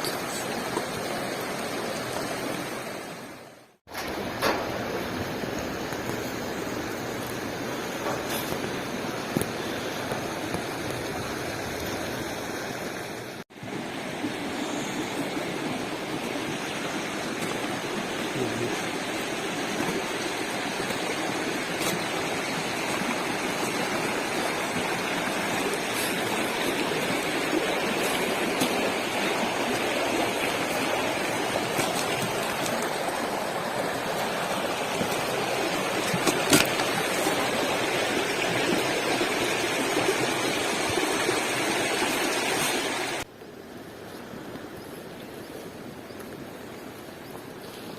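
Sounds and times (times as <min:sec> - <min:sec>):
stream water rushing: 0:00.0 - 0:47.9.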